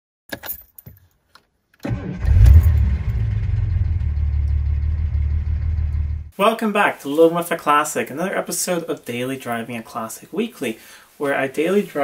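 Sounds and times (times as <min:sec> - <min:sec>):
car engine starting and idling: 0:01.8 - 0:06.3.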